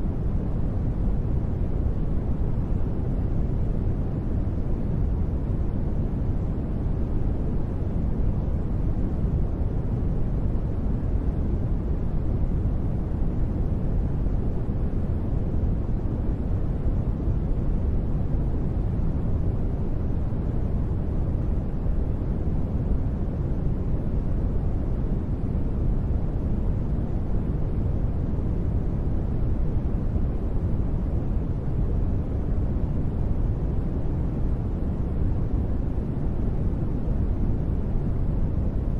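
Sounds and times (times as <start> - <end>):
deep rumbling steady noise: 0.0 - 38.9.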